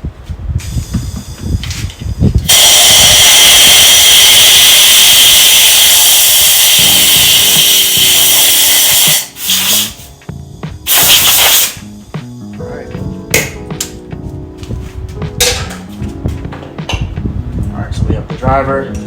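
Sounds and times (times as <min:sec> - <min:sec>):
compressed air blow gun hissing: 0:02.6 - 0:10.2, 0:10.9 - 0:11.8.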